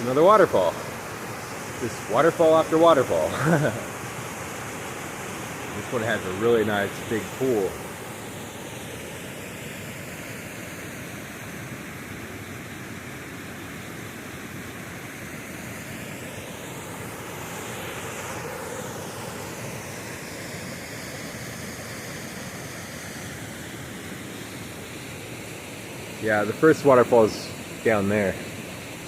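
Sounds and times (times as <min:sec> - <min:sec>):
waterfall pouring into pool: 0:00.0 - 0:08.0.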